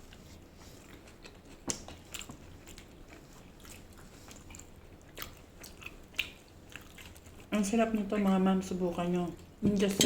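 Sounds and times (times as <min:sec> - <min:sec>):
person chewing food: 0:00.0 - 0:07.6.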